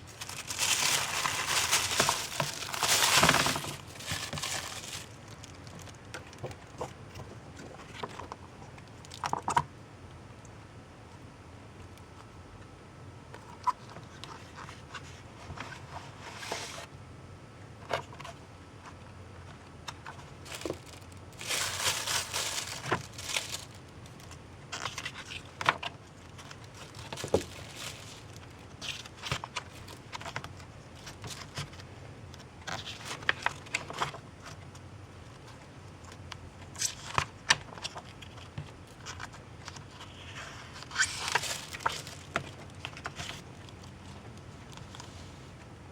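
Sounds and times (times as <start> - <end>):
packaging crinkling and rustling: 0.0 - 9.6, 19.9 - 31.8, 32.4 - 45.1.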